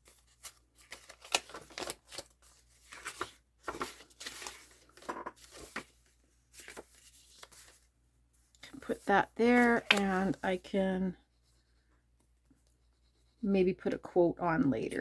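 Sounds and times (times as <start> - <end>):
paper rustling and crinkling: 0.0 - 7.9, 8.5 - 10.7.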